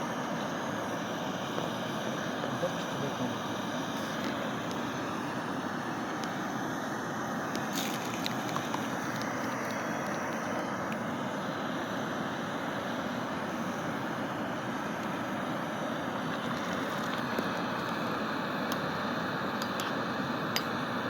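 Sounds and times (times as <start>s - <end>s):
gas fire rushing: 0.0s - 21.0s
faint crackles: 7.5s - 11.0s, 16.2s - 18.0s.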